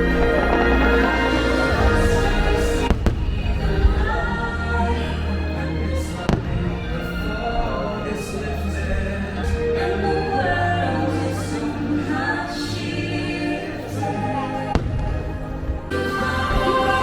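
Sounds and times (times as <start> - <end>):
choir singing: 0.0 - 17.0
orchestral music: 0.0 - 17.0.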